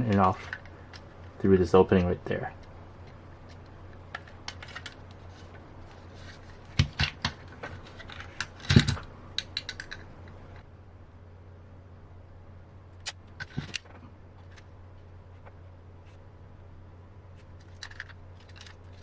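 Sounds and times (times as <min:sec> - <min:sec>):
low hum: 0:00.0 - 0:19.0
plastic parts clicking: 0:02.6 - 0:05.2, 0:06.7 - 0:10.4, 0:17.6 - 0:19.0.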